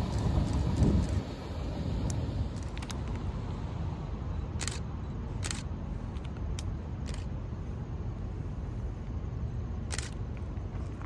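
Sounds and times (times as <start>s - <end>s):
freight train rumble: 0.0s - 11.0s
sharp clicks: 4.6s - 7.3s.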